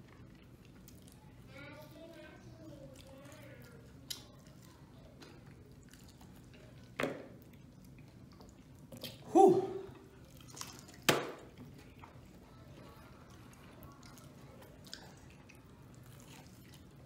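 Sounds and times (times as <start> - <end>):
people chewing: 0.0 - 17.0
person humming: 9.3 - 10.0.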